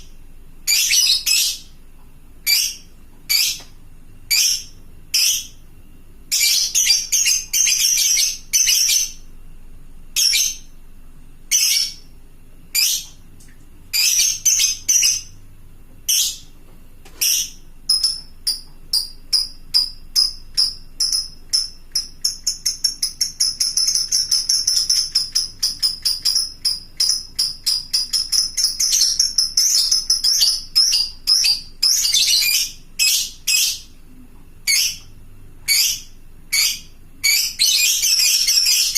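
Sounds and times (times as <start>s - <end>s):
lovebird shrill chirps: 0.7s - 1.7s, 2.5s - 3.6s, 4.3s - 5.6s, 6.3s - 9.2s, 11.5s - 12.1s, 13.9s - 15.3s, 17.2s - 33.9s, 34.7s - 35.1s, 35.7s - 38.9s.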